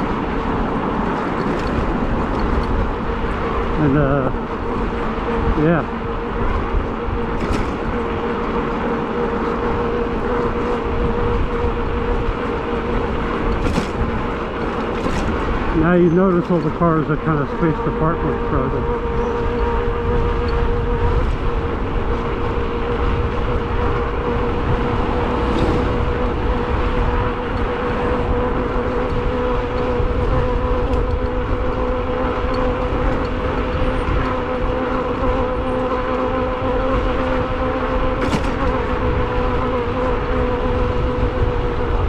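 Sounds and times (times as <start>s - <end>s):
road and wind noise: 0.0s - 42.0s
electric motor whine: 1.6s - 42.0s.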